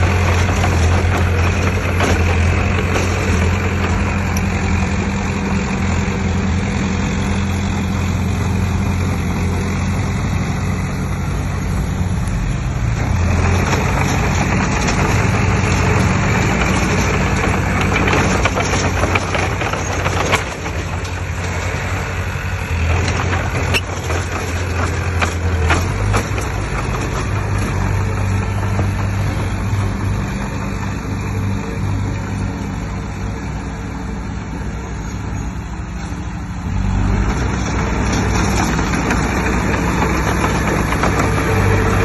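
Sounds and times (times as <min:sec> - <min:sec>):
diesel machine engine running: 0:00.0 - 0:42.0
metal clanks: 0:13.4 - 0:21.7.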